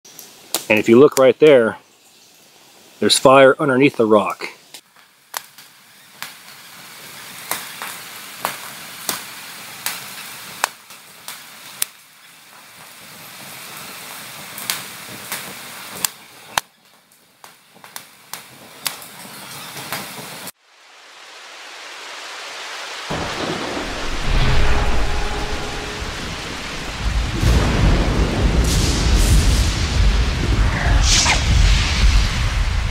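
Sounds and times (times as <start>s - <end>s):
campfire crackling and popping: 0.1s - 1.2s, 4.7s - 20.6s.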